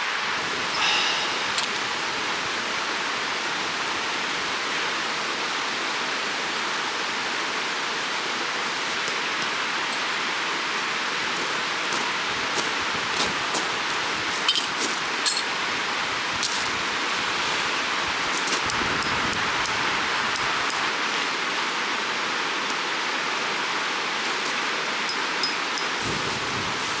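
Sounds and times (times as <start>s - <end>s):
stream of running water: 0.0s - 27.0s
short rustle: 26.0s - 27.0s.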